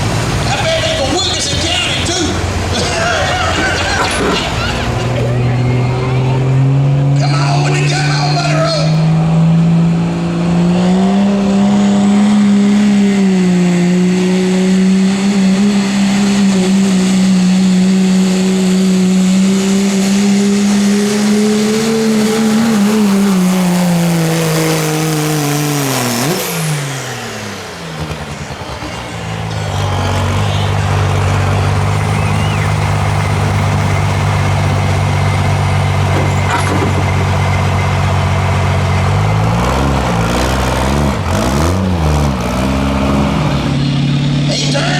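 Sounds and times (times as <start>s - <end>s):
diesel engine at high revs: 0.0s - 44.9s
low steady engine note: 26.9s - 40.1s
turbo whistle winding down: 29.4s - 33.8s.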